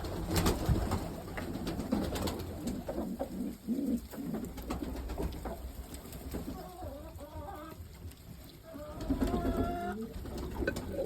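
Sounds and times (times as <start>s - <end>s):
pigeons cooing: 1.6s - 5.5s, 8.5s - 11.0s.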